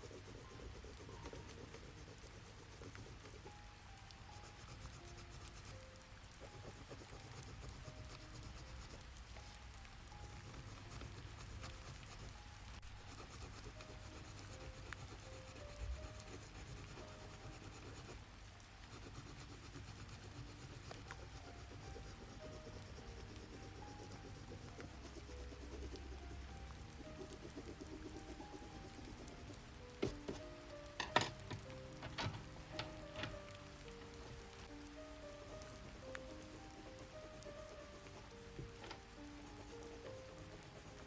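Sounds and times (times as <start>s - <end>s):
pen scratching on paper: 0.0s - 3.6s, 4.3s - 5.8s, 6.4s - 9.5s, 10.2s - 18.2s, 18.8s - 30.5s, 35.6s - 38.3s, 39.3s - 41.0s.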